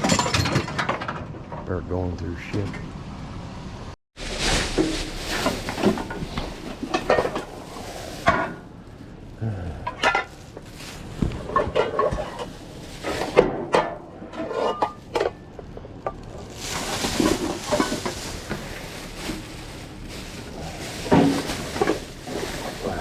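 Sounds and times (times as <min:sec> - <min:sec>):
hard objects clattering: 0:00.0 - 0:01.7, 0:04.5 - 0:23.0
junk rustling: 0:04.2 - 0:09.2, 0:09.8 - 0:23.0.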